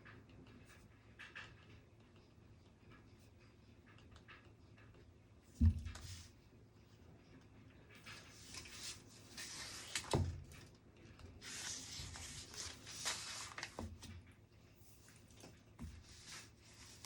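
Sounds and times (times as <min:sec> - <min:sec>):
rustling: 0:11.4 - 0:14.2.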